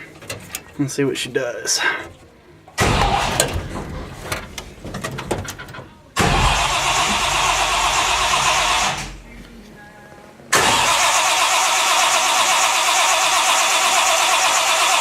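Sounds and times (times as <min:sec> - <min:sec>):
engine cranking on starter: 0:02.0 - 0:09.3, 0:10.5 - 0:15.0.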